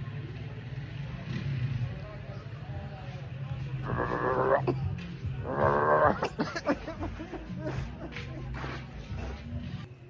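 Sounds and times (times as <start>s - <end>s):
man making quavering vocal sound: 3.8s - 4.8s, 5.4s - 6.4s.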